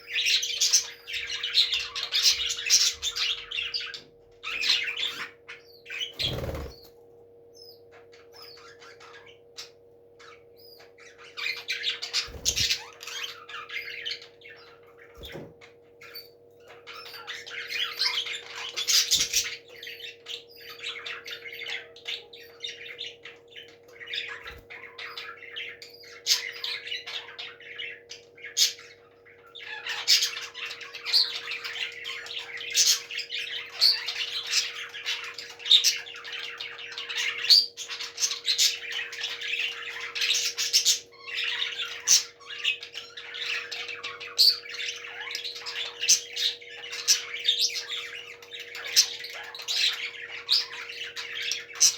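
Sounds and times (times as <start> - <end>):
parrots squawking: 0.0 - 6.8, 16.0 - 51.9
steady low hum: 0.0 - 26.9.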